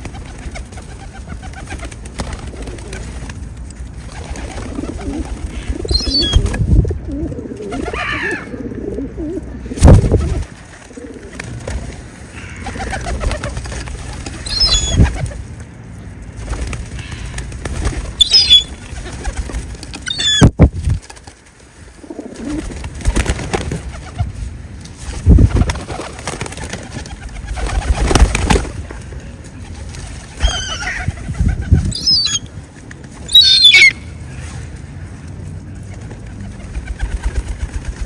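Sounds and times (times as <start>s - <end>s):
loud low flutters and rustles: 0.0s - 33.4s, 34.0s - 38.0s
birds chirping: 5.4s - 6.4s, 14.2s - 15.1s, 18.2s - 19.0s, 20.0s - 20.5s, 31.9s - 32.6s, 33.2s - 34.1s.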